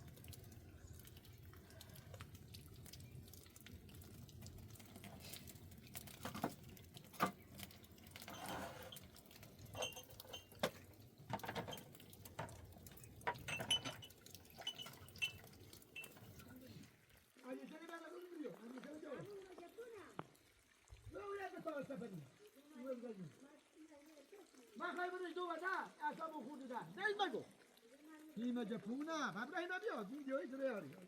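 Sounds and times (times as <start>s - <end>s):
pots and utensils clinking: 6.1s - 16.6s.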